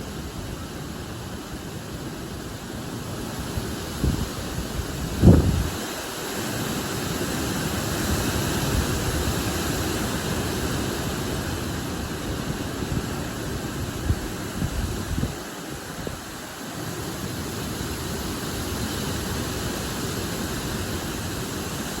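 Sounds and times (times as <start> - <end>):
wind rustling trees: 0.0 - 22.0
wind buffeting microphone: 3.3 - 6.0, 8.1 - 16.4.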